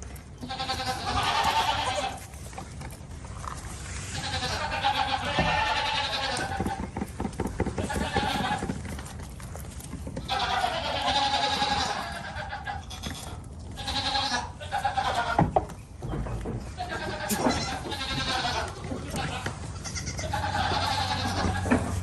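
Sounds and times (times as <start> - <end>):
goats bleating: 0.4 - 2.4, 4.0 - 7.0, 7.6 - 9.0, 10.2 - 15.6, 16.6 - 22.0.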